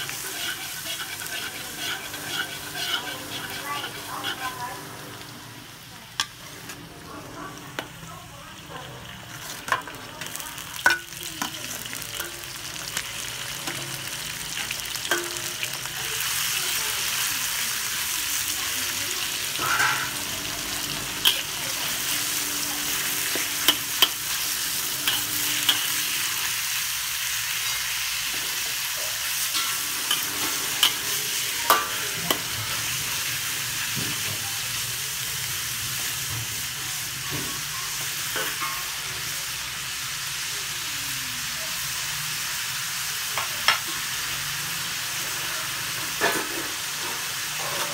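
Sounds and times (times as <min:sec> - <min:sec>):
metal spatula scraping a wok: 0:00.0 - 0:05.3, 0:19.4 - 0:26.8, 0:27.5 - 0:33.6, 0:46.1 - 0:47.9
meat sizzling in a wok: 0:00.0 - 0:47.9.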